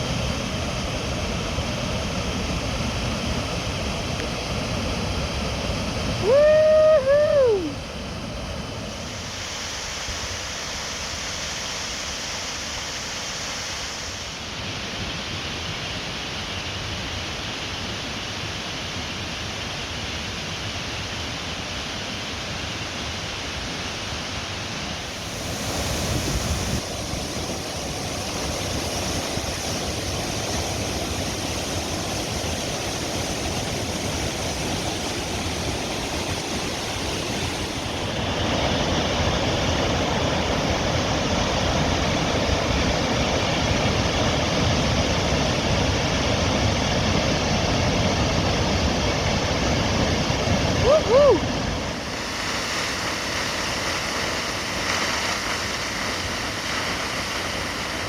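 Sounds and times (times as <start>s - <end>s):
waterfall rushing: 0.0s - 8.4s, 22.4s - 58.0s.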